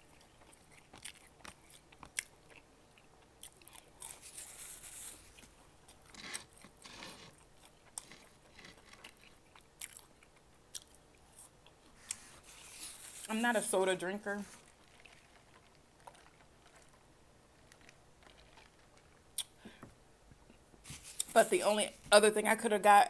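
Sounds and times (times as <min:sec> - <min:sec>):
small crunches: 0:00.0 - 0:13.4, 0:17.6 - 0:19.6
quiet chewing of fries: 0:00.0 - 0:13.5, 0:14.4 - 0:21.3
mouth clicks: 0:19.3 - 0:19.8.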